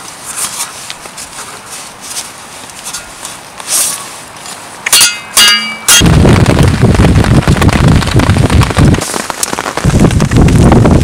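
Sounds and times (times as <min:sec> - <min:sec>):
blade striking a branch: 0:04.8 - 0:06.1
heavy rain pattering: 0:05.8 - 0:11.0.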